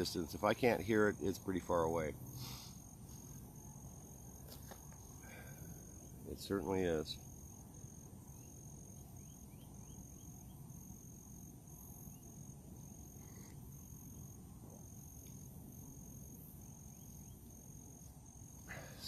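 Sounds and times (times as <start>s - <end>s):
high insect hiss: 0.0s - 19.0s
pulsing insect trill: 0.0s - 19.0s
faint bird chirps: 8.3s - 10.7s.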